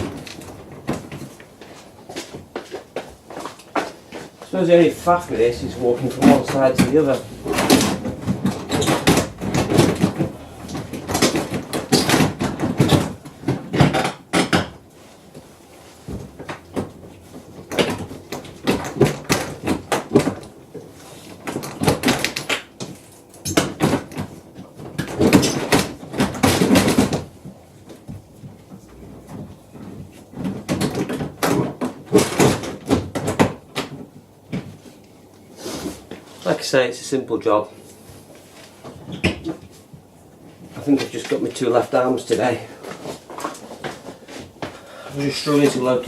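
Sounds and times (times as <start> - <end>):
panel knocks and rattles: 6.1 - 14.8.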